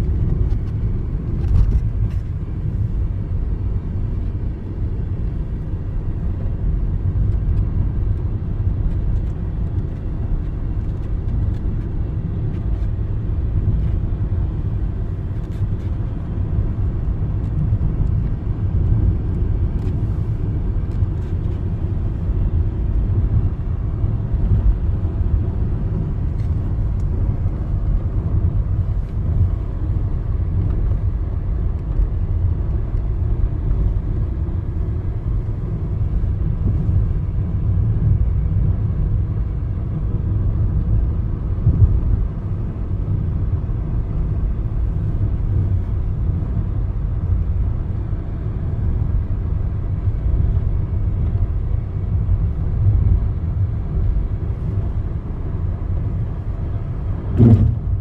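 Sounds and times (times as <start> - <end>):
low outdoor rumble: 0.0 - 58.0
brief knock: 57.4 - 57.8.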